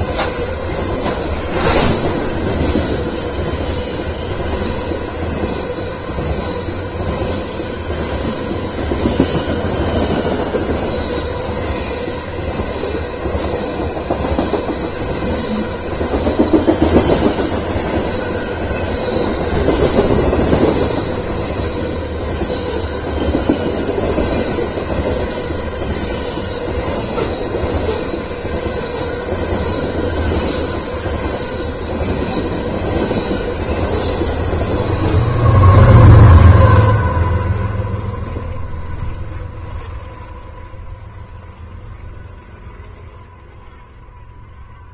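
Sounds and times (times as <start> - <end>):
freight train rolling past: 0.0 - 44.9.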